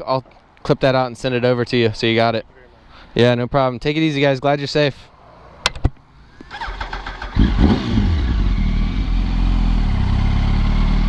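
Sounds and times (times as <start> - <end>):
motorcycle engine starting and revving: 6.4 - 11.0.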